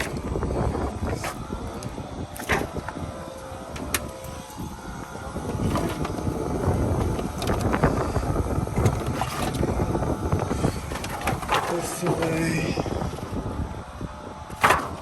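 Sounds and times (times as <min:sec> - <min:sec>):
wind buffeting microphone: 0:00.0 - 0:15.0
rustling and knocking of items: 0:10.8 - 0:12.4.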